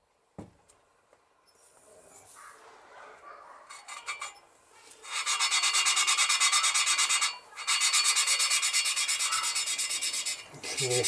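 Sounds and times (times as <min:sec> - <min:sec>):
valve lapping gritty rasping: 0:03.7 - 0:11.0.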